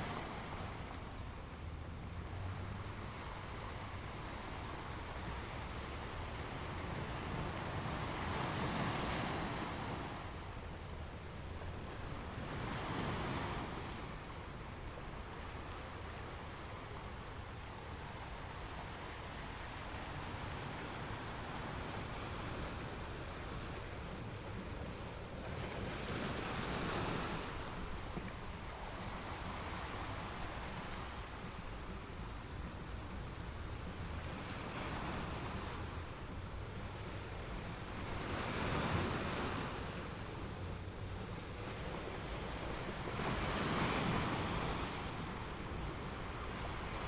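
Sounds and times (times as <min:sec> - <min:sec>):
small waves breaking on beach: 0:00.0 - 0:47.0
wind rumble on microphone: 0:00.0 - 0:47.0.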